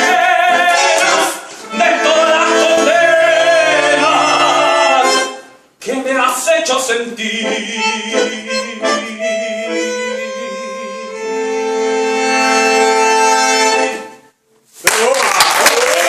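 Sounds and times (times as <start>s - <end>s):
free-reed instrument playing: 7.5s - 14.3s.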